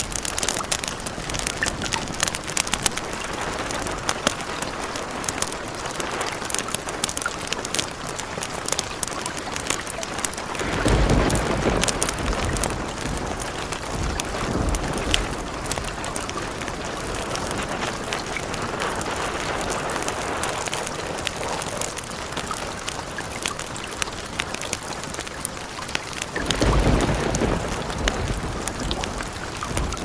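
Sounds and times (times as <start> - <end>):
rain falling: 0.0 - 30.0
sharp crackles: 0.0 - 30.0
low rumble of thunder: 10.4 - 22.9, 26.2 - 30.0.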